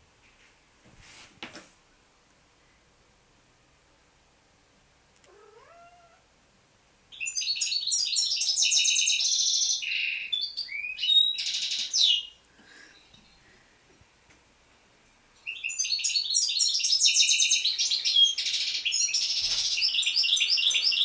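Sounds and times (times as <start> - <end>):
cat meowing: 5.2 - 6.3
birds singing trills and chirps: 7.1 - 13.5, 15.4 - 21.0.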